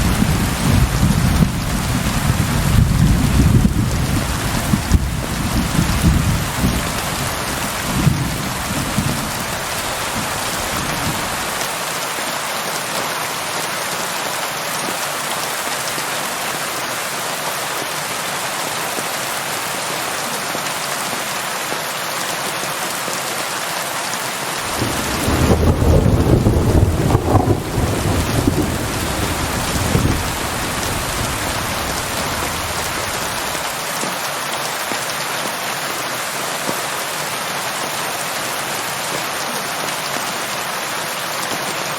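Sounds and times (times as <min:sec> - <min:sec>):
rolling thunder rumble: 0:00.0 - 0:11.6, 0:24.7 - 0:33.6
heavy rain hissing: 0:00.0 - 0:14.2, 0:24.4 - 0:41.5.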